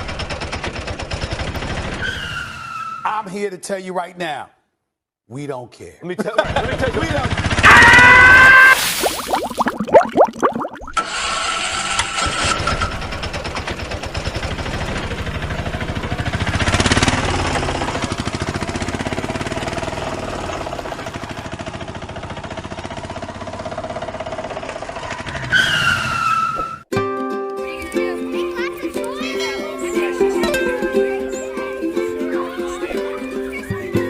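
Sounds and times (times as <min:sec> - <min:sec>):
vehicle engine running: 0:12.9 - 0:25.4.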